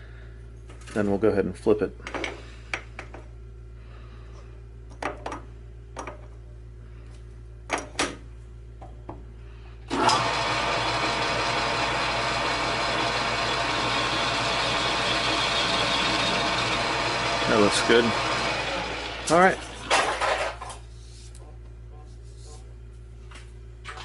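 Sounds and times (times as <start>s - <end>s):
electric machine motor running: 9.9s - 19.9s.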